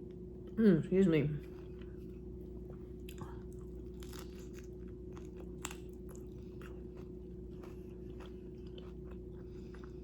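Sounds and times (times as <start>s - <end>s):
steady low hum: 0.0s - 10.0s
person chewing: 1.4s - 10.0s.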